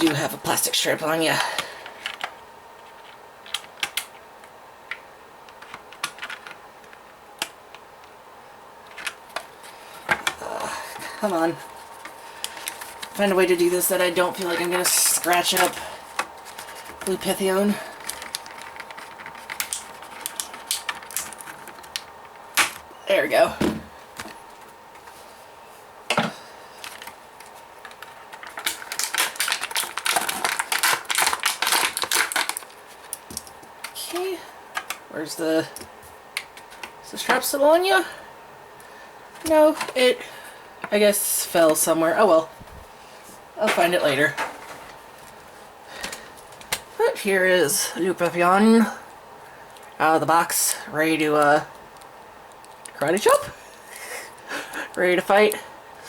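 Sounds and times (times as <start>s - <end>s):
plastic packaging clicks and crinkles: 1.5s - 8.1s, 8.8s - 22.9s, 26.8s - 35.1s, 35.7s - 37.5s, 43.7s - 47.0s, 49.7s - 53.4s.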